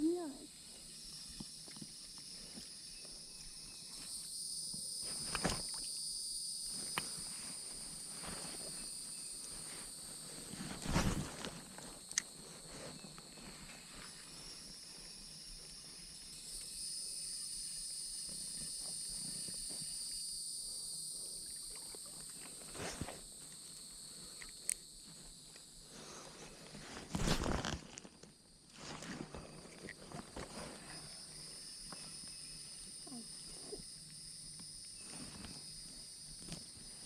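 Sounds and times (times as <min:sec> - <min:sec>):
insects buzzing: 0:00.0 - 0:37.0.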